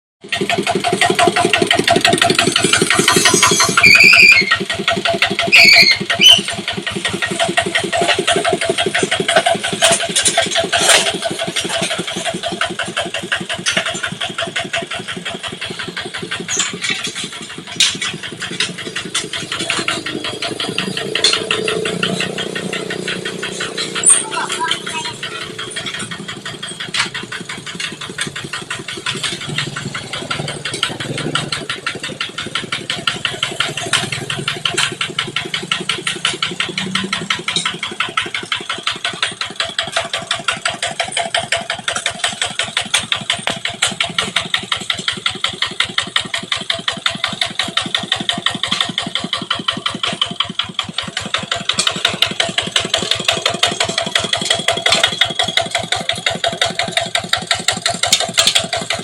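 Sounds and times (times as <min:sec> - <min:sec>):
diesel engine chugging: 0:00.2 - 0:59.0.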